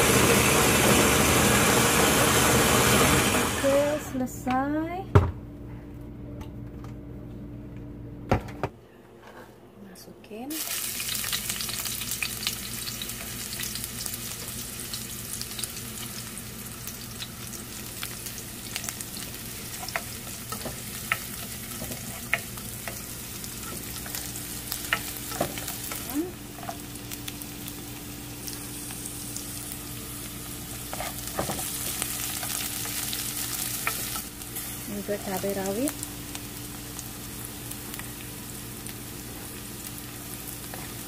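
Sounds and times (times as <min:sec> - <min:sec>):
aromatics sizzling in hot oil: 0:10.5 - 0:41.0.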